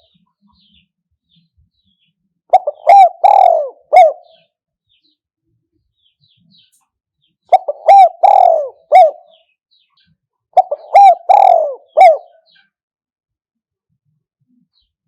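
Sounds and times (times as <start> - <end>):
dove cooing: 2.5 - 4.5, 7.5 - 9.4, 10.6 - 12.7.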